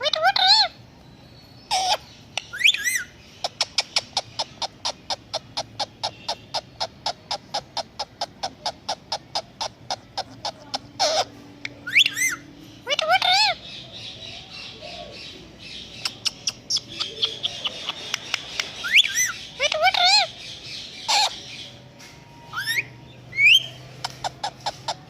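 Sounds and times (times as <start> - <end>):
parrot warbling calls: 0.0 - 0.8, 1.7 - 21.8, 22.5 - 25.0
parrot fast chirps: 1.7 - 13.6, 15.9 - 21.7.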